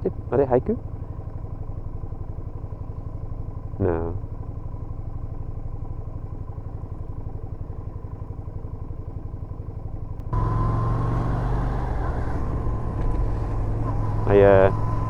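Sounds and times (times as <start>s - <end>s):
motorcycle engine running: 0.0s - 15.0s
faint high whine: 10.4s - 15.0s.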